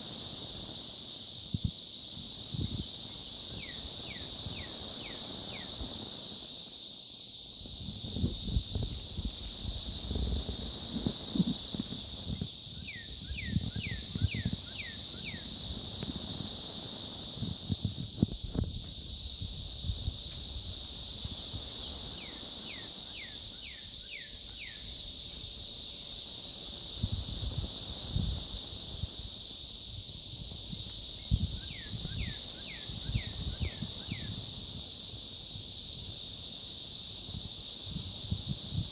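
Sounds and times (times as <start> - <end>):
cicadas droning: 0.0 - 38.9.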